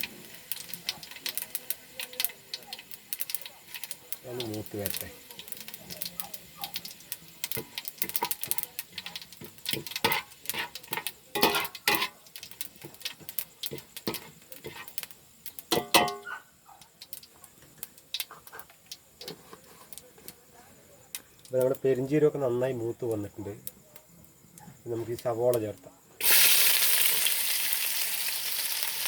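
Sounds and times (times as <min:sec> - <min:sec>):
seeds crackling in a hot pan: 0:00.0 - 0:29.0
utensil clattering against pan: 0:07.4 - 0:12.2, 0:12.8 - 0:15.0, 0:15.7 - 0:16.3.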